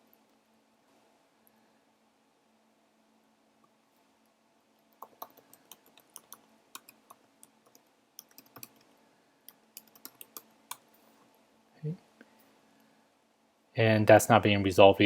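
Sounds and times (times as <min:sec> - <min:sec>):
typing on computer keyboard: 0:05.0 - 0:08.9, 0:09.5 - 0:10.8.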